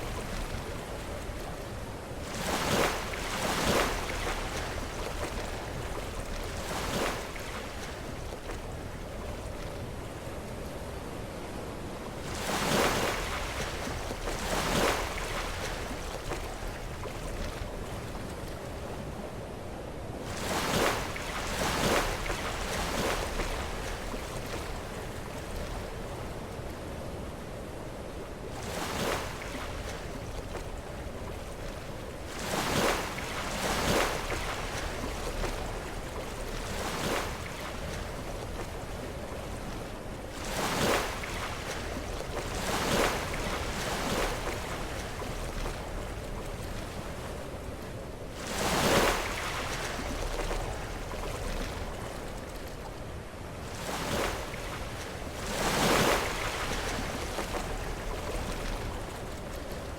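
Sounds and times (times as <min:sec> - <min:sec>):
sea waves breaking against rocks: 0:48.4 - 0:52.4, 0:53.7 - 0:59.9.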